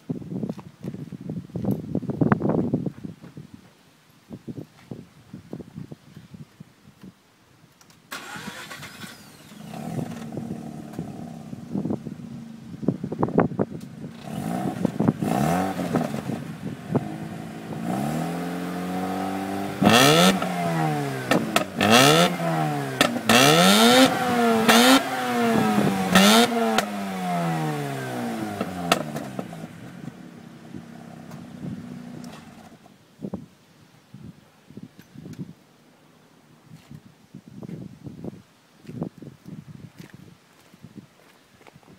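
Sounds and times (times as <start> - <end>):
car engine starting and idling: 8.1 - 13.1, 13.8 - 32.8
engine revving in throttle blips: 8.2 - 11.8, 14.1 - 32.7.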